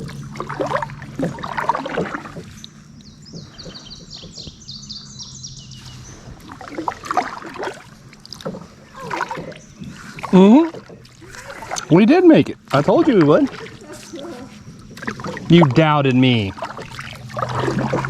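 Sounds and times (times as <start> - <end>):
paddle strokes splashing in water: 0.0 - 18.0
bird singing high repeated notes: 2.5 - 6.3.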